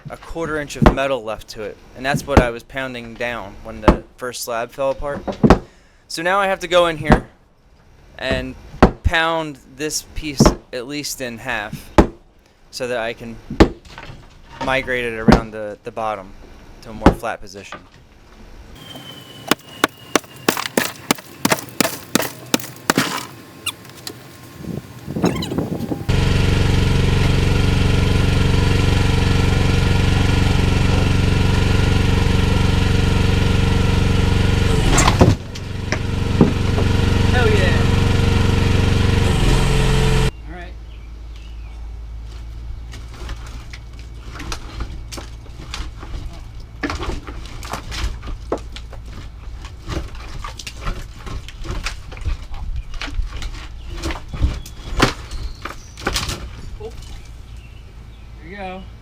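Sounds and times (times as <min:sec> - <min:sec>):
sharp knocks: 0:18.8 - 0:23.9
small excavator engine running: 0:18.8 - 0:40.4.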